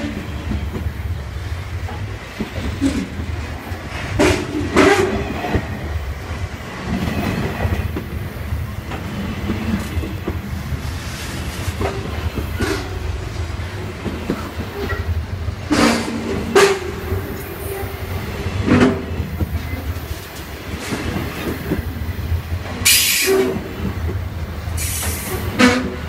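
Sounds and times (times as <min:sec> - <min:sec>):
wheels clattering over rails: 0:00.0 - 0:08.2
freight train rumbling past: 0:00.0 - 0:26.0.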